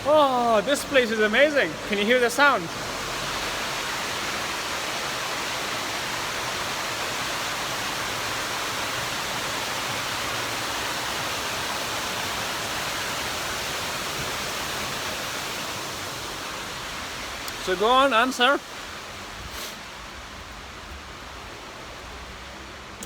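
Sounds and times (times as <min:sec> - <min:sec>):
water pouring over waterfall: 0:00.0 - 0:21.9.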